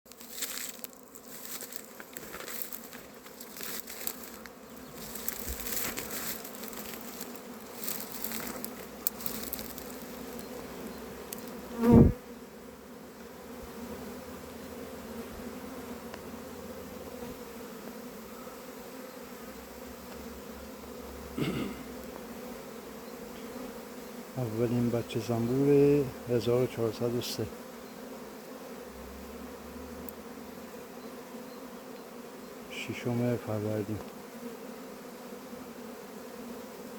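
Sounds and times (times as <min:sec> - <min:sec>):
faint crackling and ticking: 0:00.1 - 0:11.6
bee flying past microphone: 0:00.1 - 0:24.4
honey bees buzzing: 0:00.1 - 0:36.9.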